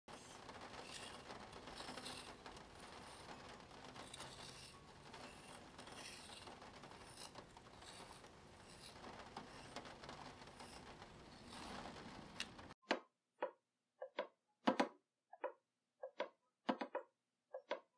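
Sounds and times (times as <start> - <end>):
plastic gear wheel clicking and rasping: 0.1 - 12.6.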